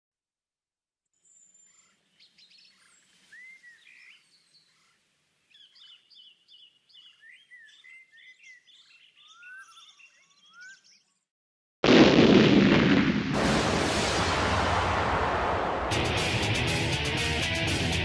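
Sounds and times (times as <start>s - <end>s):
faint songbirds singing: 1.1s - 11.3s.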